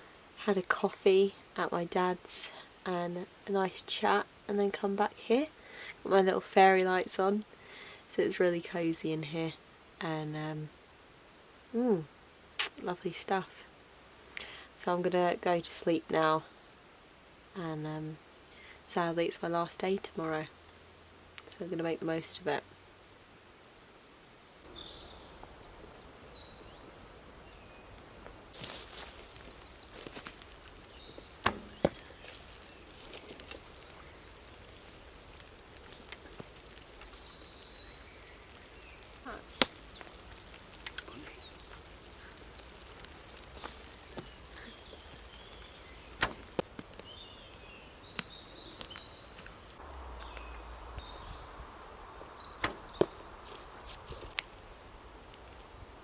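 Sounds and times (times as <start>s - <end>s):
songbirds chirping and trilling: 24.6s - 54.4s.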